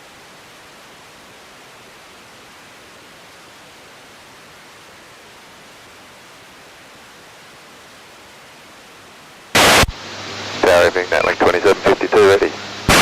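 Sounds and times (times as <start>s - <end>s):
radio static hiss: 9.5s - 13.0s.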